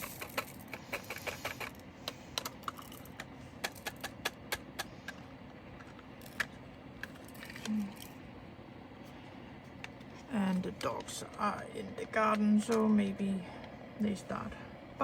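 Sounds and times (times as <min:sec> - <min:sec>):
small plastic beads clicking: 0:00.0 - 0:04.9
low hum: 0:00.0 - 0:15.0.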